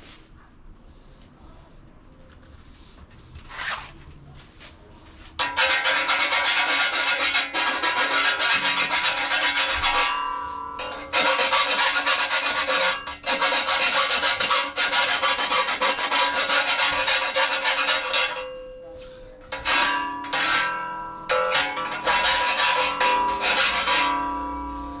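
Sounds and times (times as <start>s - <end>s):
file rasping on sheet metal: 5.4s - 18.7s, 19.5s - 24.9s.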